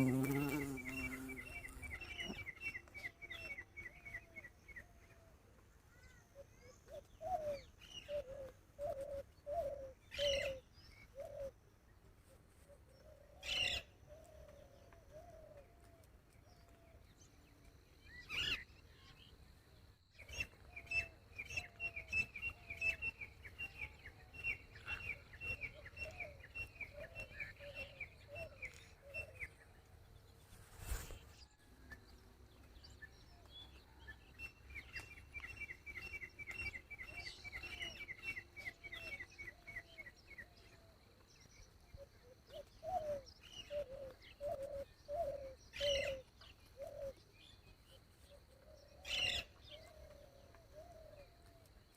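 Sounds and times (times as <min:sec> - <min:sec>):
birds chirping: 0:00.0 - 0:04.8.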